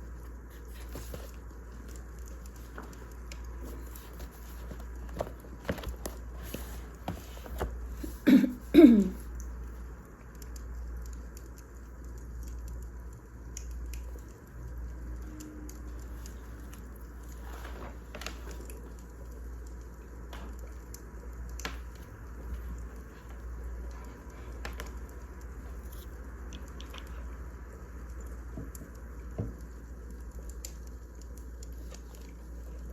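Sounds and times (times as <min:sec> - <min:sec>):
low hum and hiss: 0:00.0 - 0:32.9.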